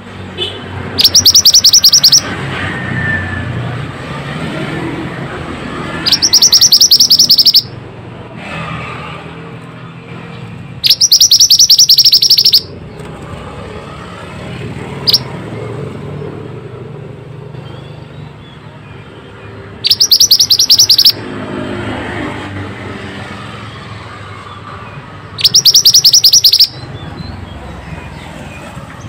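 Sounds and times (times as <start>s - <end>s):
bird trilling: 1.0s - 2.3s, 5.9s - 7.8s, 10.8s - 12.8s, 15.0s - 15.3s, 19.7s - 21.2s, 25.4s - 27.4s.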